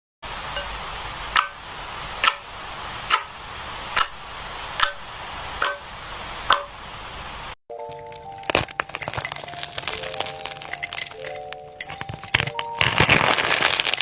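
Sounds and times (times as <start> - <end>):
steady hiss: 0.2 - 7.6.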